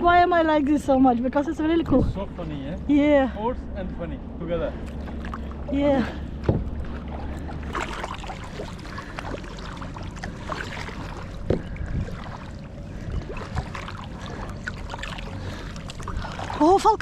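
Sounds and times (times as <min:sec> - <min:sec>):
paddle strokes in water: 0:04.7 - 0:17.0
short knocks: 0:06.4 - 0:07.0.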